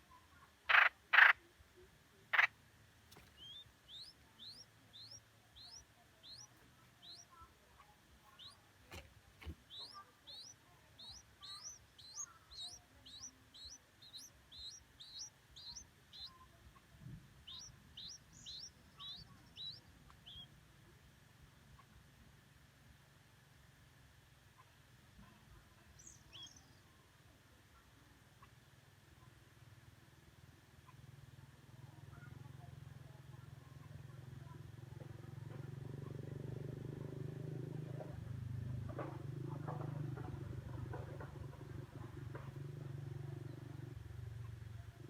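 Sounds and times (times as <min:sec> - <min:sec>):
baby birds chirping: 0:00.6 - 0:01.4, 0:02.3 - 0:02.5, 0:03.1 - 0:20.5, 0:25.9 - 0:26.8.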